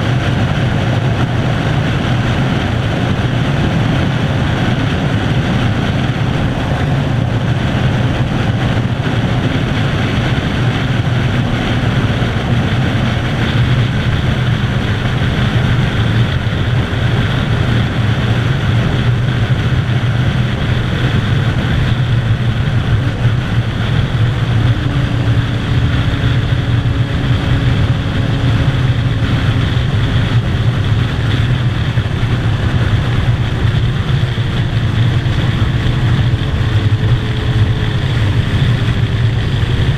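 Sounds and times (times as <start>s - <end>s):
motorcycle engine cruising: 0.0s - 39.9s
wind rushing: 0.0s - 39.9s.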